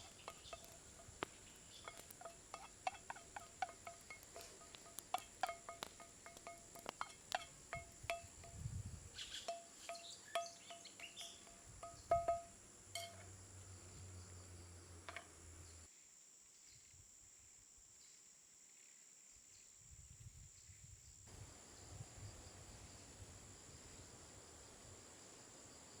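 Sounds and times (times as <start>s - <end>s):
utensil clinking against a dish: 0.0s - 8.6s, 9.2s - 13.4s
high insect buzz: 0.0s - 15.9s.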